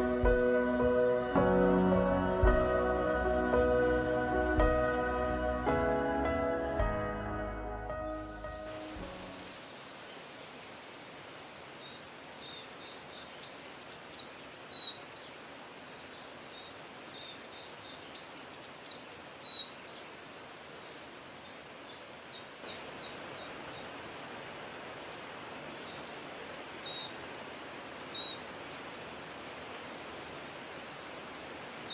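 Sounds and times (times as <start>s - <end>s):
songbird chirping: 6.7s - 11.0s, 11.6s - 24.1s, 25.0s - 29.9s
steady background hiss: 8.2s - 31.9s.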